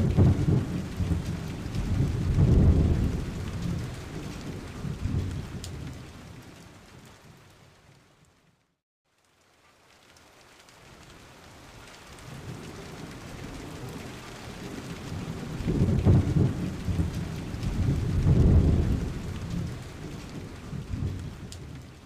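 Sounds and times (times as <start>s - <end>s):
rolling thunder: 0.0s - 6.2s, 12.5s - 21.8s
steady rain hiss: 0.0s - 22.0s.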